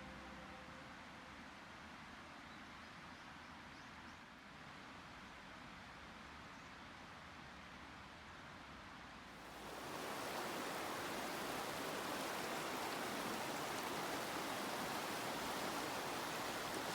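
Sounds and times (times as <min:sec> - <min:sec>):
river water rushing: 0:09.5 - 0:16.9.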